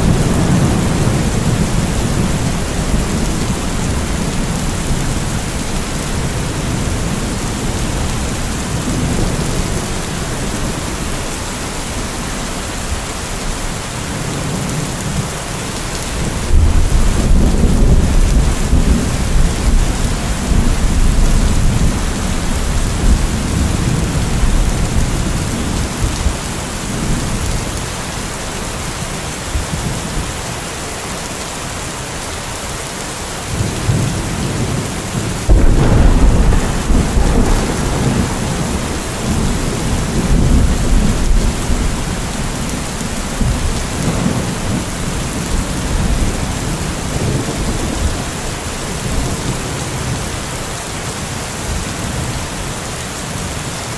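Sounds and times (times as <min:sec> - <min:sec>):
loud thunderclap: 0:00.0 - 0:10.9, 0:16.2 - 0:26.4, 0:33.6 - 0:48.4
rolling thunder: 0:00.0 - 0:11.5, 0:16.0 - 0:27.8, 0:33.5 - 0:50.2
steady rain: 0:00.0 - 0:53.9.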